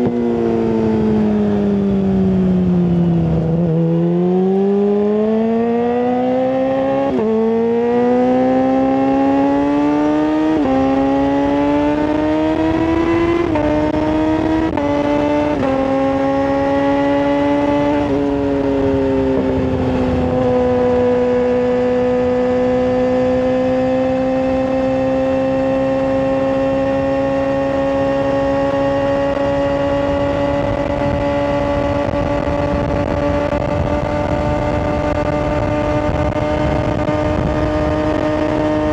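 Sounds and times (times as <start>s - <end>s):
motorcycle accelerating hard: 0.0s - 38.9s.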